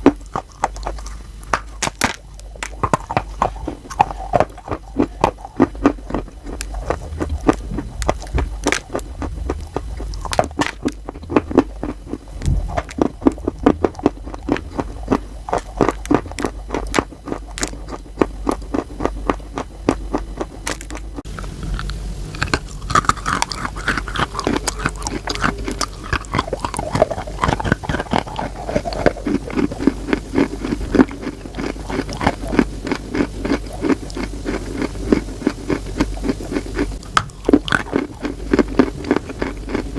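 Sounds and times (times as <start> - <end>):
chewing crunchy chalk: 0.0 - 39.9.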